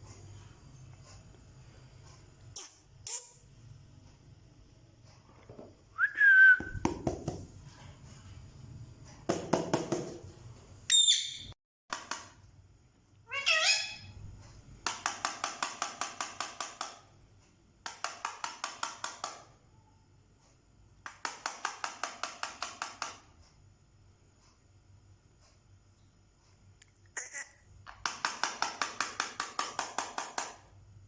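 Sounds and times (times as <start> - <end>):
parrot rapid pulsed chatter: 27.2 - 27.6.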